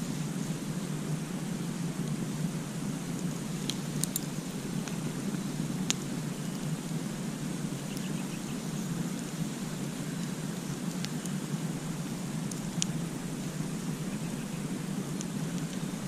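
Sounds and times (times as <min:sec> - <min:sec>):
campfire crackling: 0:00.0 - 0:16.0
burning wood popping: 0:02.8 - 0:16.0.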